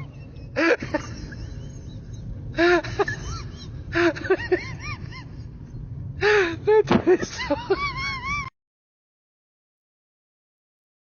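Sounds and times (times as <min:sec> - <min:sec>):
low background rumble: 0:00.0 - 0:08.5.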